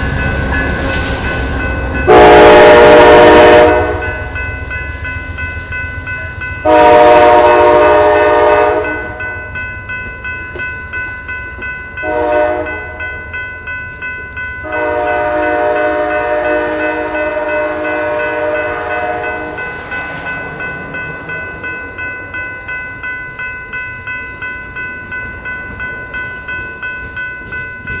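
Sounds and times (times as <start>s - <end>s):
train rumbling past: 0.0s - 28.0s
train horn blasts: 2.0s - 4.4s, 6.6s - 9.3s, 12.0s - 13.2s, 14.6s - 19.8s
bell ringing: 7.7s - 28.0s.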